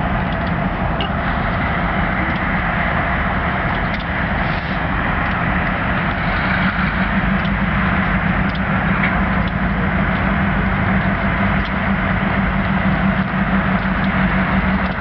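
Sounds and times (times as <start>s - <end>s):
diesel locomotive engine running: 0.0s - 15.0s
faint ticks: 7.4s - 7.6s, 11.6s - 11.8s, 14.8s - 15.0s.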